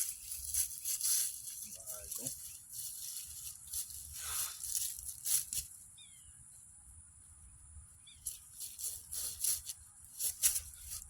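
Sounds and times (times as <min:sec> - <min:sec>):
outdoor ambience hiss: 0:00.0 - 0:11.0
rustling and crunching movement: 0:00.0 - 0:11.0
small bird chirping: 0:05.8 - 0:06.6, 0:07.5 - 0:09.1.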